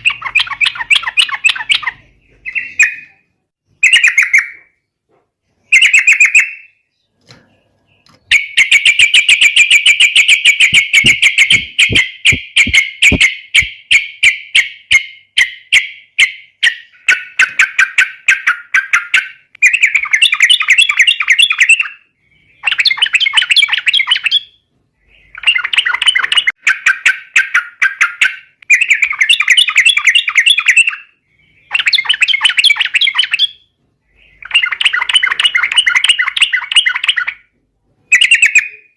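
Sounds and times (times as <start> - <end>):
rapid bird chattering: 0.0 - 3.2, 7.5 - 37.5
bulbul singing: 0.0 - 4.8, 5.6 - 38.9
bubbly bird song bursts: 8.3 - 13.7.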